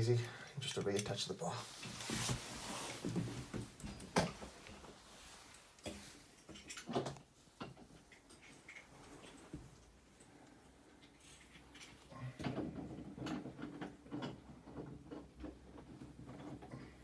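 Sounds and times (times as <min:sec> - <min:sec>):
shower fittings clicking and rattling: 0:00.6 - 0:01.3, 0:05.5 - 0:09.6, 0:11.0 - 0:16.6.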